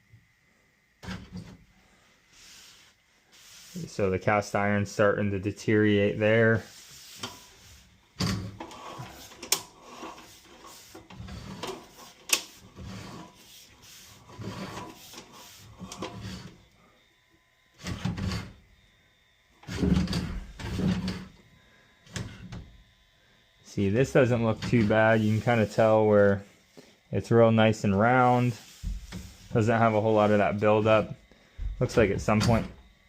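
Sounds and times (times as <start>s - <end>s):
cable scraping in drain: 8.2s - 16.6s.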